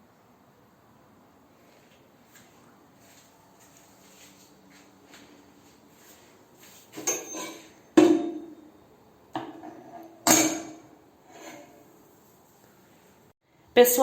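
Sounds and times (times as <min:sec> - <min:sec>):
sharp ringing knocks: 0:07.0 - 0:08.6.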